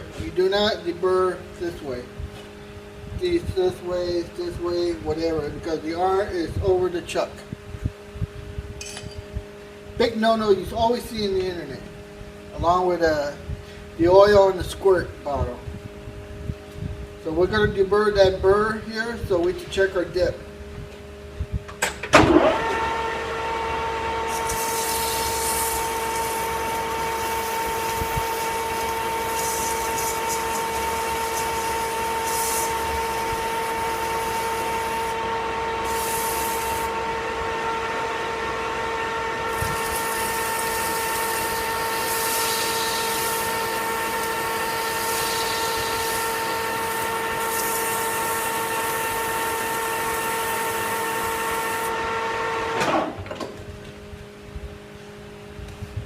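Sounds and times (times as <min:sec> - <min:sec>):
metal lathe whining: 0:22.1 - 0:53.2
hand file scraping metal: 0:24.3 - 0:34.5.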